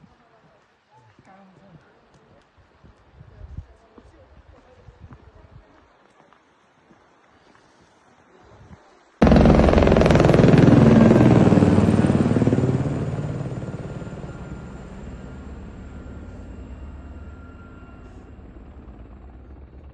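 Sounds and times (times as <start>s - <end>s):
helicopter rotor beating: 9.2s - 19.9s.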